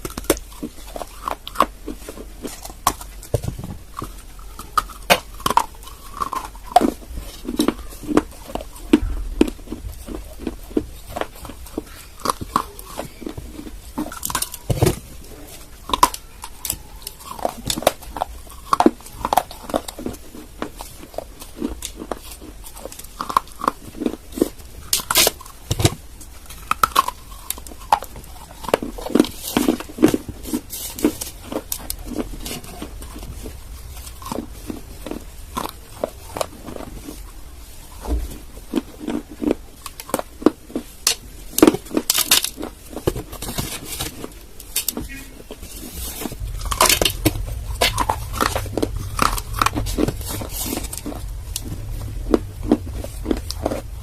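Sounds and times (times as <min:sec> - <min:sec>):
clay being chewed with crunches: 0:00.0 - 0:54.0
low rumble: 0:00.4 - 0:20.8, 0:30.3 - 0:39.8, 0:45.0 - 0:54.0.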